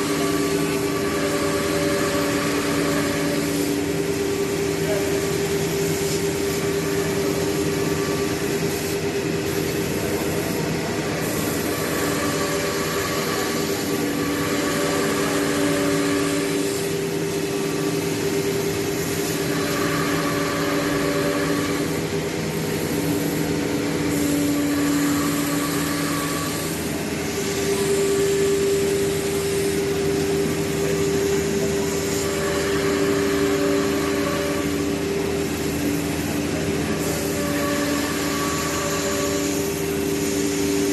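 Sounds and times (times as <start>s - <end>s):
router machine hum and whine: 0.0s - 40.9s.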